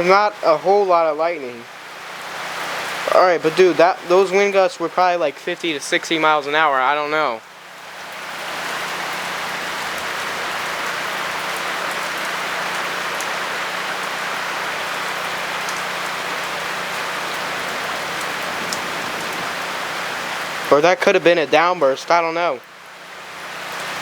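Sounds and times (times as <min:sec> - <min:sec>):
raindrops ticking close by: 0:00.0 - 0:24.0
steady rain hiss: 0:00.0 - 0:24.0.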